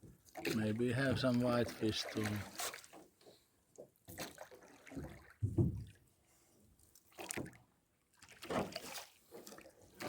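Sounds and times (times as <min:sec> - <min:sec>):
water splashing and dripping: 0:00.0 - 0:06.1, 0:06.8 - 0:10.0
knock against boat: 0:05.4 - 0:06.0.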